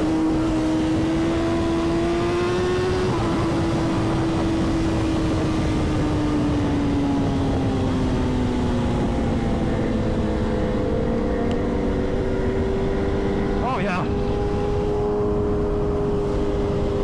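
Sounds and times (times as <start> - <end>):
motorcycle engine running at speed: 0.0 - 17.0
heavy rush of wind: 13.3 - 17.0.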